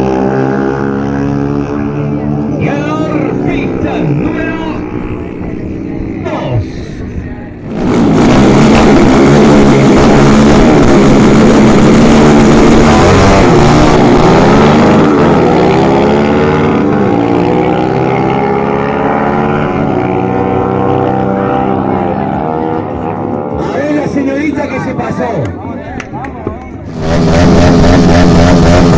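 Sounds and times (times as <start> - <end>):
motorcycle engines at full throttle: 0.0 - 28.9.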